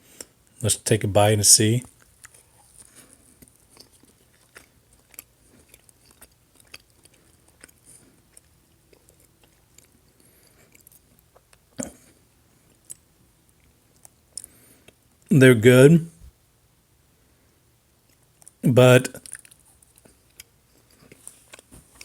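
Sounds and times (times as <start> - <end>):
person chewing fries: 2.0 - 15.2, 19.2 - 22.0.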